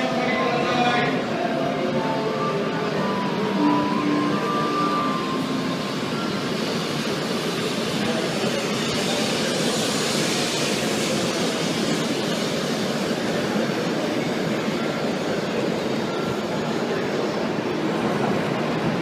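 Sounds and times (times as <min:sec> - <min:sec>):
train rolling past: 0:00.0 - 0:19.0.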